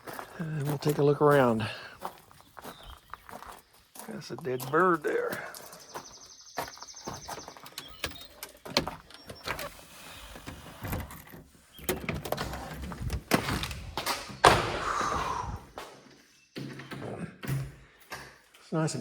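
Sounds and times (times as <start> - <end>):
door scraping and rattling: 7.1 - 14.8
door latch clicks and knocks: 7.6 - 9.6, 10.8 - 14.7
loud door bang: 13.2 - 15.6.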